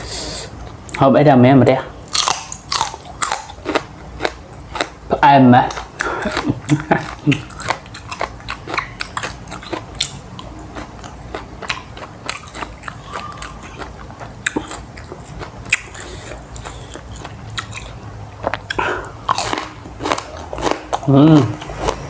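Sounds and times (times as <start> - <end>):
person chewing crunchy food: 2.0 - 22.0
wet mouth clicks: 5.9 - 21.8.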